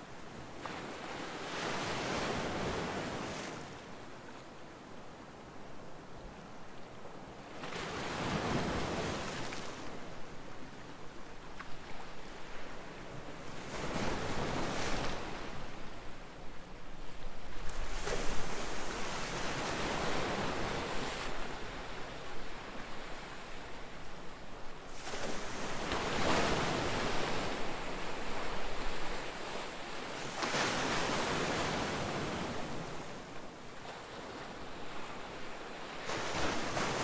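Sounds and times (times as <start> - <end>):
ocean waves breaking: 33.9 - 37.0.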